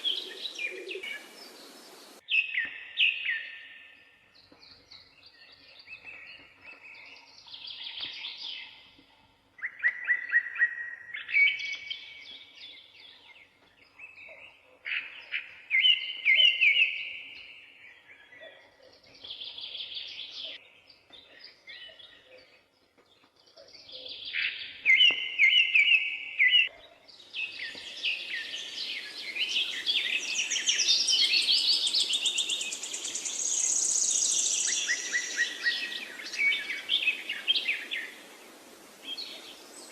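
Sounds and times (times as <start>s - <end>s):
chorus of high bird calls: 0.0s - 2.6s, 23.5s - 39.9s.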